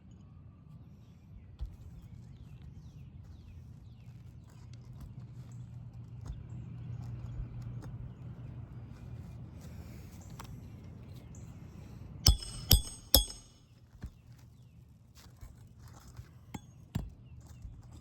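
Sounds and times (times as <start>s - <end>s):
hammer blows on metal: 12.3s - 13.6s.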